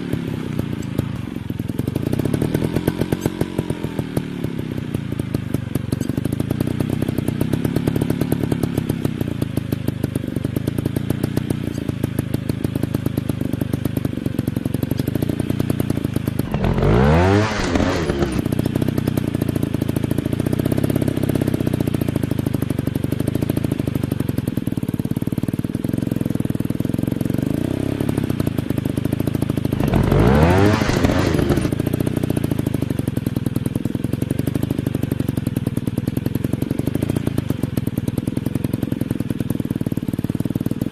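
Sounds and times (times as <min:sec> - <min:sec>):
dirt bike engines running: 0:00.0 - 0:40.9
motorcycle revving sharply: 0:02.0 - 0:05.0, 0:16.4 - 0:19.0, 0:29.7 - 0:32.5.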